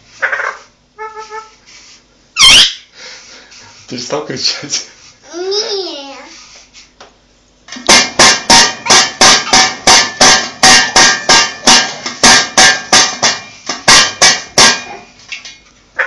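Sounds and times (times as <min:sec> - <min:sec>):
hard ringing knocks: 0:07.8 - 0:15.1.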